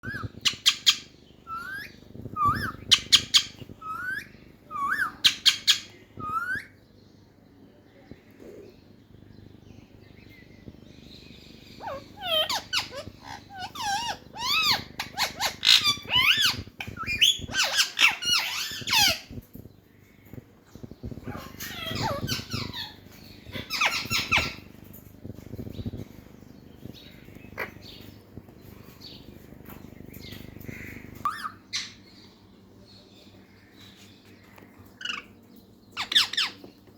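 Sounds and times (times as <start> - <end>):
parrot chattering and calling: 0.0 - 6.8, 11.7 - 19.4, 21.1 - 25.0, 27.3 - 28.1, 30.6 - 32.0, 35.9 - 36.6.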